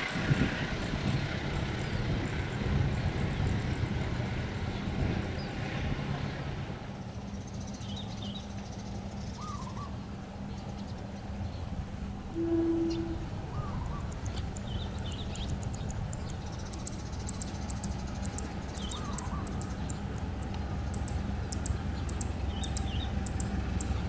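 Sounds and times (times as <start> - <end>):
diesel engine hum: 0.0 - 24.0
train rumble: 0.0 - 24.0
birds chirping: 7.0 - 24.0.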